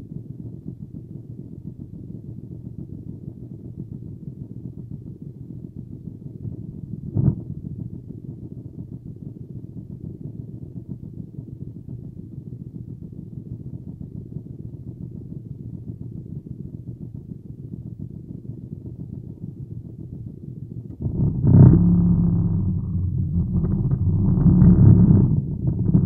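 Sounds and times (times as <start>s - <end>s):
car engine idling: 20.9s - 26.0s.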